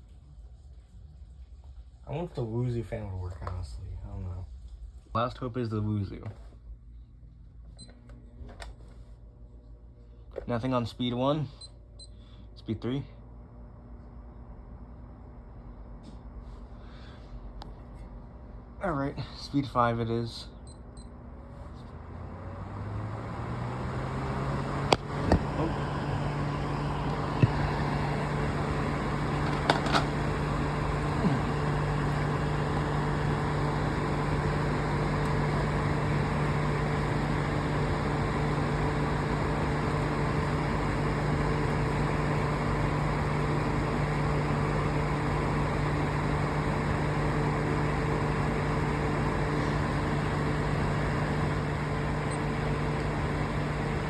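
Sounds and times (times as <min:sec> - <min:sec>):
electric fan motor hum: 0:11.0 - 0:54.0.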